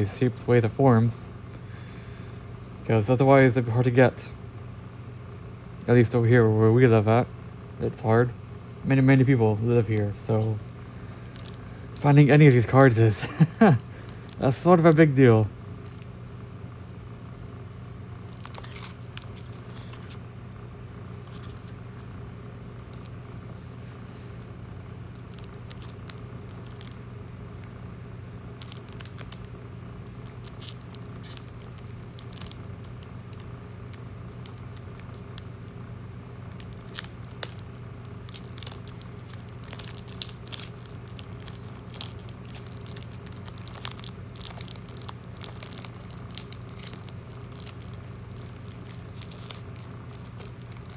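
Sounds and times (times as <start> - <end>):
low steady hum: 0.0 - 50.9
foil pack tearing and crinkling: 9.9 - 15.0, 18.3 - 20.2, 25.1 - 27.0, 28.6 - 35.8, 36.4 - 50.9.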